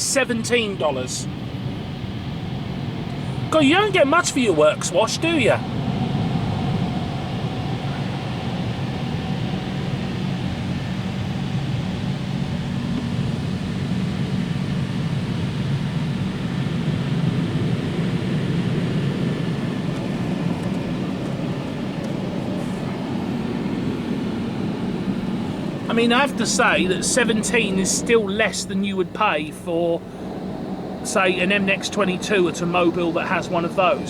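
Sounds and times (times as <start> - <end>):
car wash drying blowers: 0.0 - 34.0.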